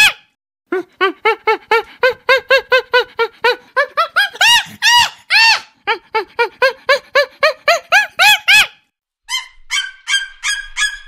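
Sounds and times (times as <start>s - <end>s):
monkey calling: 7.7s - 10.9s.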